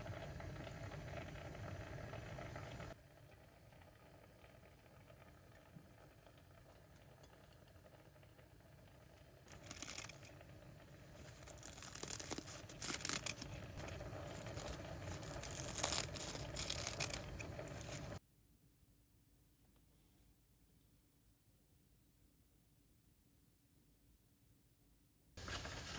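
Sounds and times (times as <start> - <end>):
crinkling and rustling handling noise: 9.5 - 18.2, 25.4 - 25.9.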